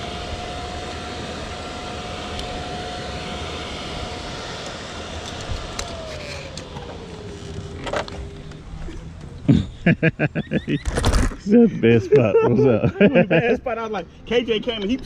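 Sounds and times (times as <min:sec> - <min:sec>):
thin whine sliding down: 0:00.0 - 0:09.3
vehicle noise: 0:00.0 - 0:15.0.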